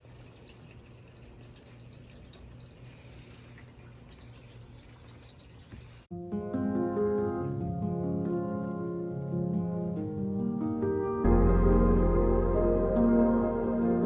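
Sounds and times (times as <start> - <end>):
rain dripping: 0.0 - 6.1, 11.3 - 14.0
low hum: 11.3 - 14.0.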